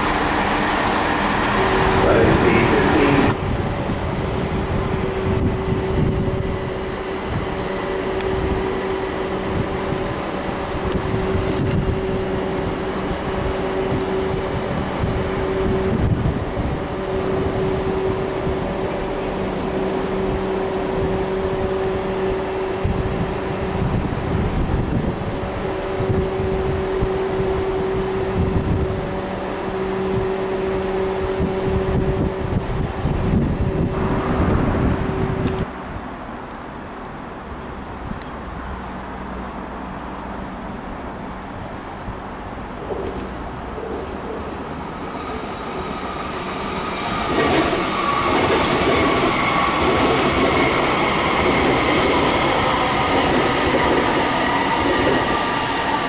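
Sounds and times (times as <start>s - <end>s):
steady mechanical drone: 0.0s - 35.7s
train rumbling on tracks: 0.0s - 56.0s.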